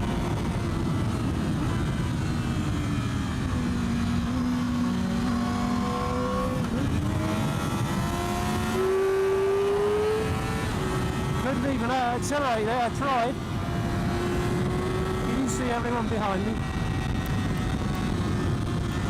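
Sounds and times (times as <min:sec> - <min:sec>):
motorcycle engine accelerating: 0:00.0 - 0:19.0
wind rushing in helmet: 0:00.0 - 0:19.0.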